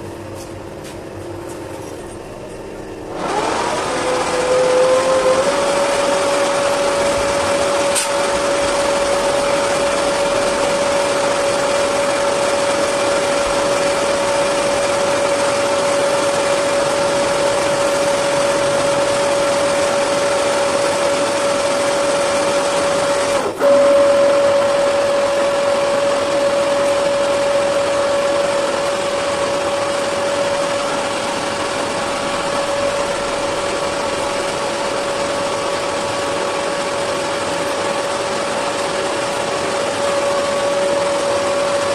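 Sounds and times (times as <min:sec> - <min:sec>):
motor-driven machine whining: 0:02.1 - 0:41.9.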